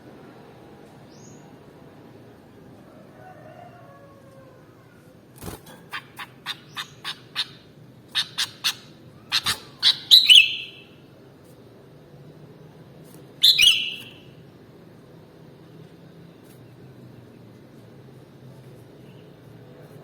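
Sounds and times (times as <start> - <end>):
bird chirping: 5.8 - 11.0, 13.4 - 14.3.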